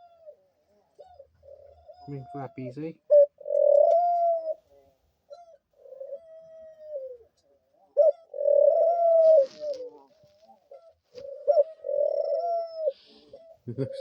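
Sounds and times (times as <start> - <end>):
dove cooing: 0.0 - 14.0
brief rustle: 9.2 - 11.4.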